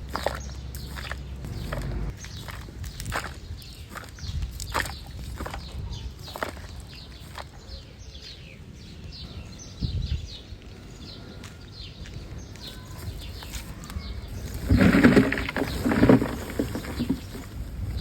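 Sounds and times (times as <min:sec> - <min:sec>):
low outdoor rumble: 0:00.0 - 0:06.2, 0:12.1 - 0:18.0
small birds chirping: 0:00.0 - 0:18.0.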